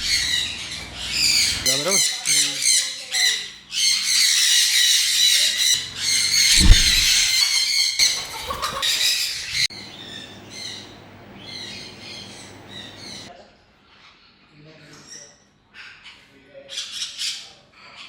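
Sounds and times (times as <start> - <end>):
parrots screeching and squawking: 0.0 - 9.6
short low thump: 6.5 - 7.3.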